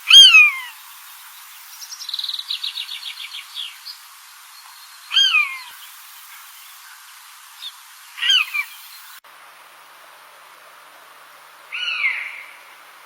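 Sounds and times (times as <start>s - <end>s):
steady hiss: 0.0s - 13.0s
bird crying: 0.1s - 0.8s, 5.1s - 5.8s, 8.2s - 8.8s, 11.7s - 12.7s.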